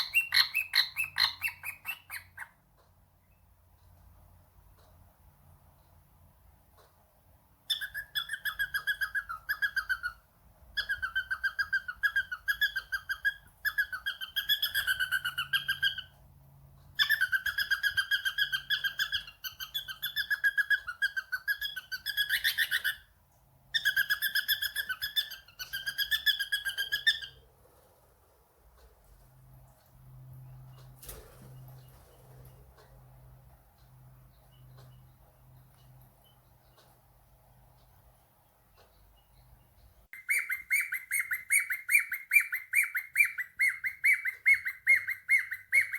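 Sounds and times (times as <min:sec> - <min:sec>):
cockatiel whistling trills: 0:00.0 - 0:02.5, 0:07.7 - 0:10.2, 0:10.8 - 0:16.1, 0:17.0 - 0:23.1, 0:23.8 - 0:27.4, 0:40.2 - 0:45.9.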